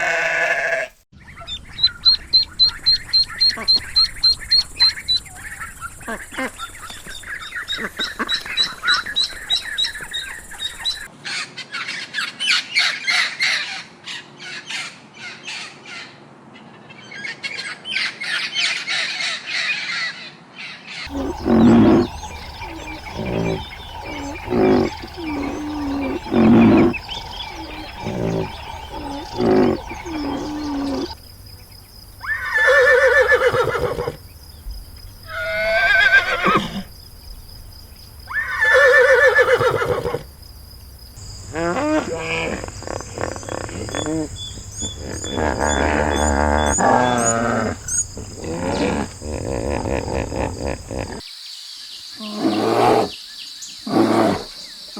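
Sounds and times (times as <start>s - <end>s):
long drawn-out animal calls: 0.0s - 1.0s, 21.0s - 31.2s, 32.2s - 34.2s
short low animal calls: 21.1s - 31.2s
bird chatter: 21.1s - 31.7s.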